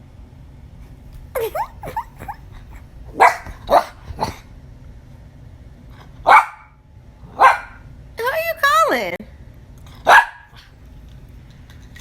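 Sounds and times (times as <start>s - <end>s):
small dog whining yelps: 1.4s - 4.0s
small dog barking: 1.4s - 4.4s, 6.2s - 7.8s, 10.0s - 10.7s.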